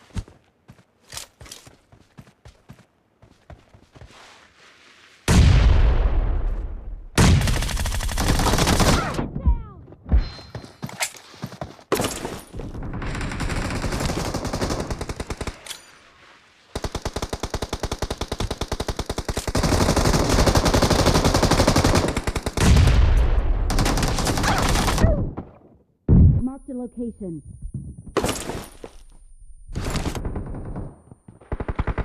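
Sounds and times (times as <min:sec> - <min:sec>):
video game automatic gunfire: 0:29.8 - 0:32.0.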